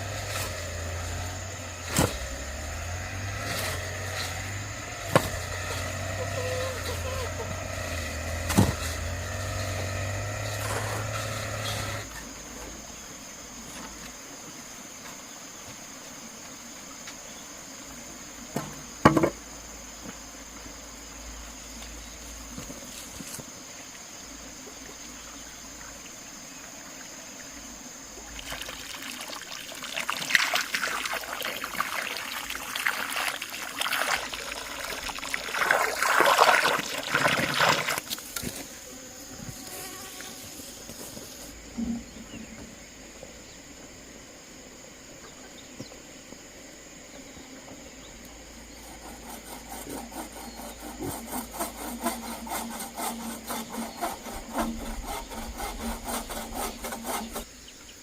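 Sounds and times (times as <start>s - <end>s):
hand saw cutting wood: 0.0s - 12.2s, 48.7s - 57.5s
insect buzz: 0.0s - 58.0s
rustling and scraping handling noise: 39.4s - 42.0s.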